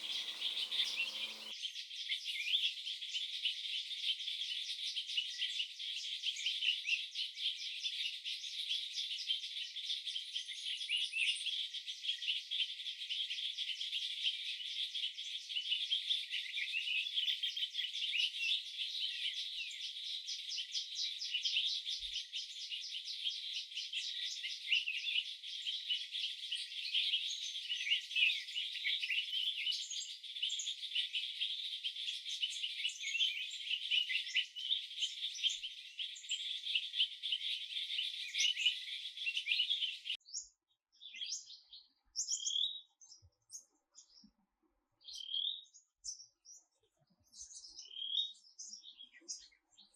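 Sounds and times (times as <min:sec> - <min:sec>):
insects chirping: 0:00.0 - 0:01.5
bird chirps: 0:00.0 - 0:01.6, 0:32.0 - 0:44.4.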